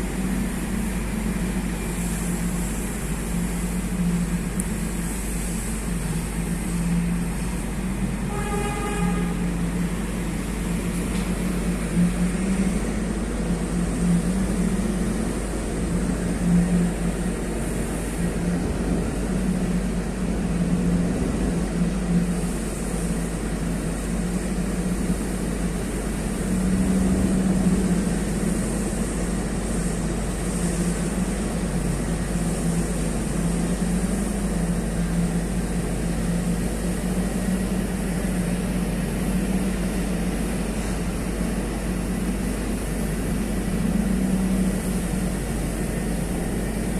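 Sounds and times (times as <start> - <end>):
diesel truck engine droning: 0.0 - 46.9
truck horn: 8.2 - 9.6.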